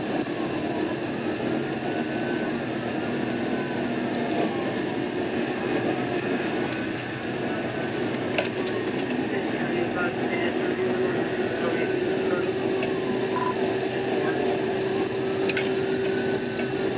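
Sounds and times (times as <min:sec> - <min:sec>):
road and wind noise: 0:00.0 - 0:16.9
police siren wailing: 0:09.5 - 0:16.9.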